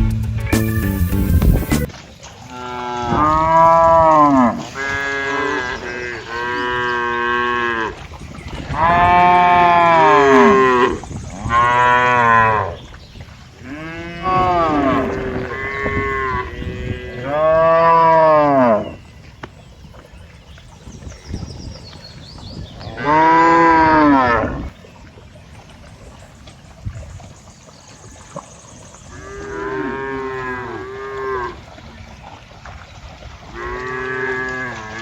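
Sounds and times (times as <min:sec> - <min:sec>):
cattle mooing: 0:08.8 - 0:12.8, 0:13.6 - 0:18.9, 0:22.9 - 0:24.7.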